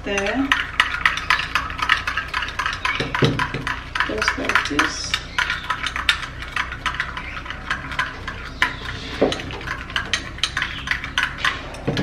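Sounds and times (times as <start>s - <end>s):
spoon stirring in a bowl: 0.0s - 12.0s.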